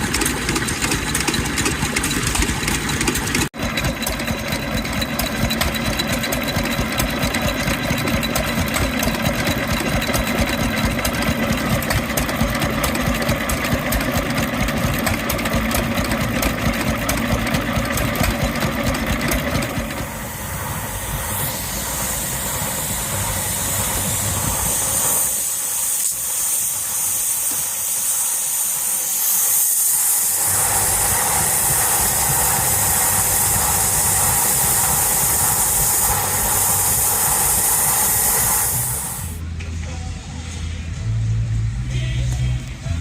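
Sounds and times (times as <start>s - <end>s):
vintage engines running: 0.0s - 43.0s
hiss of escaping steam: 17.5s - 39.4s.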